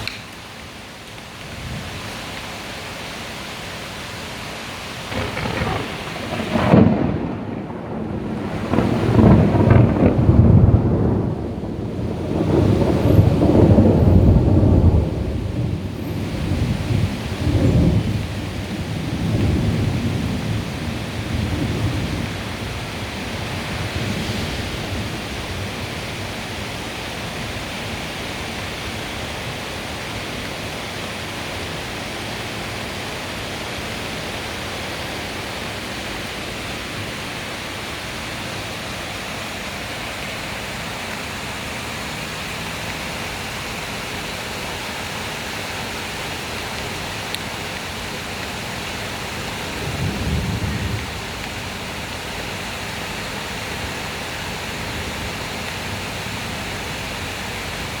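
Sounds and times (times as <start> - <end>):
heavy rain pouring: 0.0 - 58.0
thunder rumbling: 5.0 - 26.5, 46.8 - 52.5.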